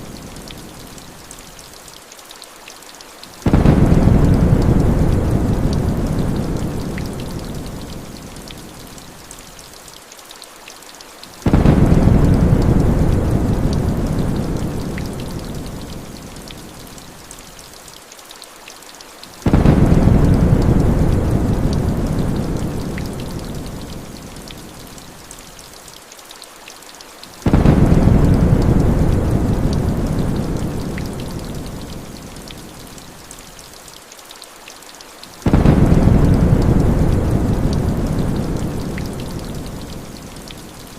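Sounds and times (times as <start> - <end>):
heavy rain falling: 0.0 - 40.9
thunder rumbling: 3.4 - 7.9, 11.5 - 15.9, 19.5 - 23.8, 27.4 - 31.9, 35.4 - 39.9.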